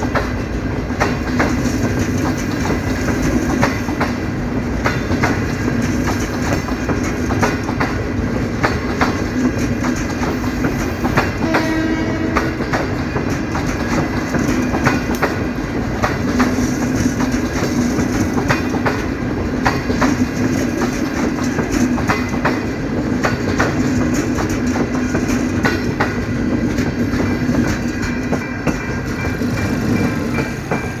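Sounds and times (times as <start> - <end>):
train wheels clicking over rail joints: 0.0 - 31.0
pitched train squeal: 10.2 - 13.0.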